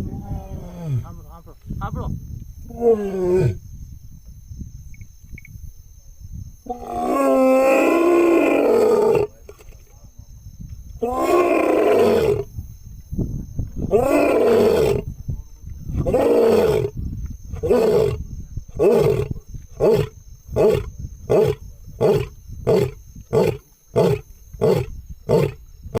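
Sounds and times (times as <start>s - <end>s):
lion roaring: 2.7s - 3.6s, 6.7s - 9.3s, 11.0s - 12.5s, 13.9s - 15.1s, 16.0s - 16.9s, 17.6s - 18.2s, 18.8s - 25.6s.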